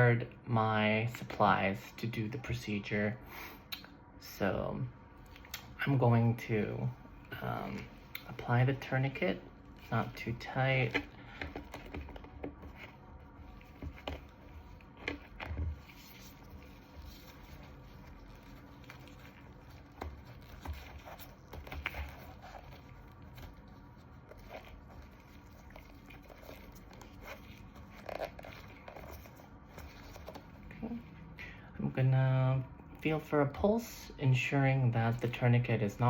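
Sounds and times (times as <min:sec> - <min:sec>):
hands rustling and scraping: 0:06.7 - 0:31.3.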